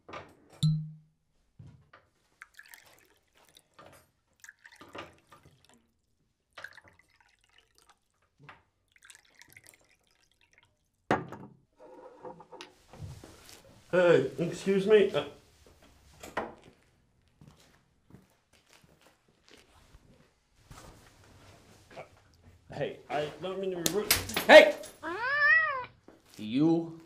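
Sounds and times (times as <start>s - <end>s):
liquid dripping and splashing: 2.2s - 11.1s.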